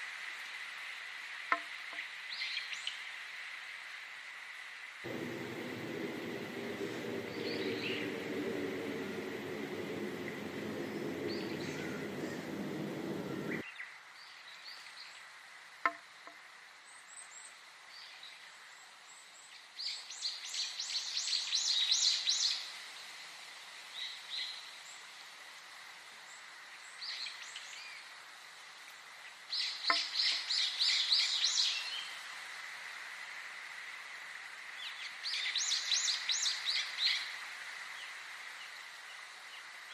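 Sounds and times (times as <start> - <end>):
birds chirping and singing: 5.1 - 13.6
low hum: 5.1 - 13.6.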